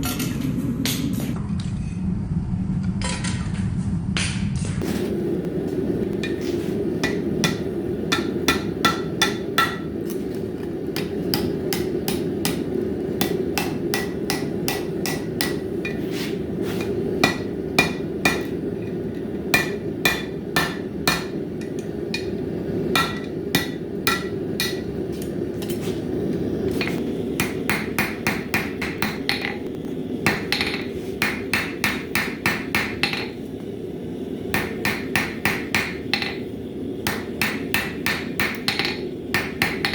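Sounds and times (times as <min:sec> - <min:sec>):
low rushing noise: 0:04.8 - 0:32.6
hammer blows on an anvil: 0:06.2 - 0:10.2, 0:11.0 - 0:18.6, 0:19.5 - 0:25.0, 0:26.8 - 0:29.6, 0:30.2 - 0:33.4, 0:34.6 - 0:36.5, 0:37.1 - 0:39.9.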